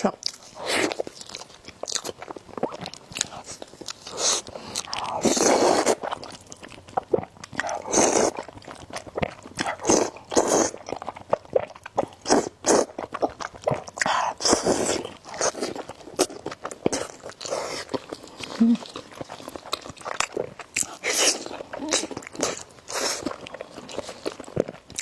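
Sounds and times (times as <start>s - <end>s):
wet chewing: 0.1s - 25.0s
slurping noodles: 3.3s - 6.2s, 7.2s - 8.5s, 9.7s - 10.8s, 13.6s - 18.8s, 20.2s - 23.4s.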